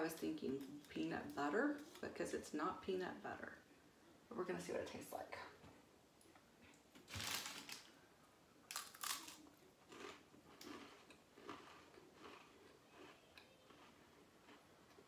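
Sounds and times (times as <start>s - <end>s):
cracker crunching: 7.0s - 8.0s, 8.7s - 15.0s
person chewing: 8.7s - 15.0s.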